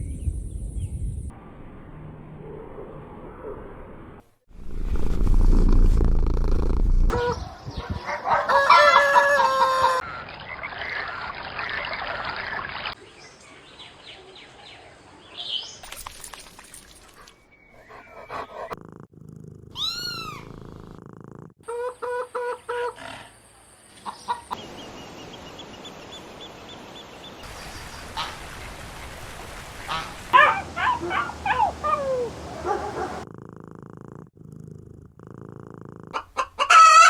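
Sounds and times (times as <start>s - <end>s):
chickens calling: 7.1s - 10.2s, 36.1s - 37.0s
rooster crowing: 8.2s - 10.0s, 36.4s - 37.0s.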